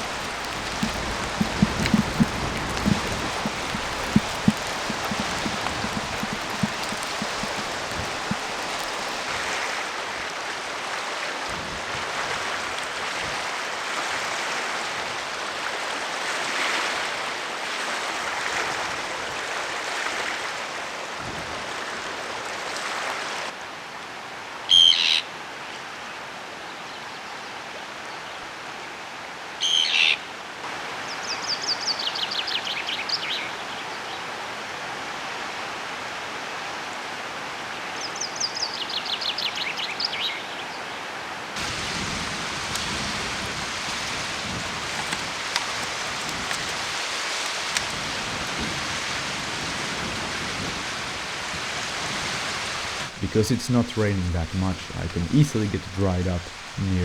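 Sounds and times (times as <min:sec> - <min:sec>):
rain hiss: 0:00.0 - 0:23.5, 0:41.6 - 0:57.0.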